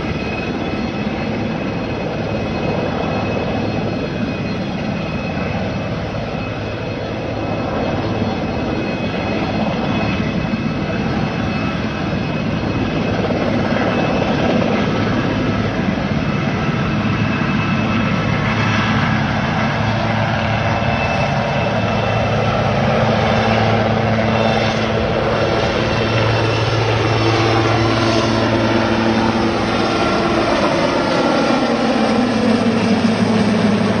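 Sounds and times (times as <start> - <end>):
helicopter rotor and turbine: 0.0 - 34.0.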